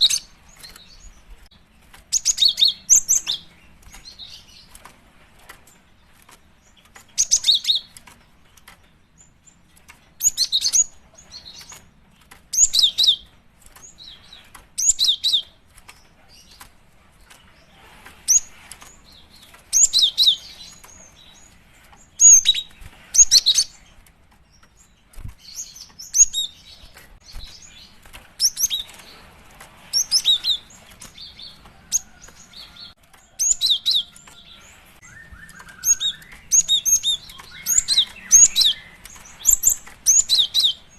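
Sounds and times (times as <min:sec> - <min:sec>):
bird high sharp chirps: 0:29.9 - 0:40.9.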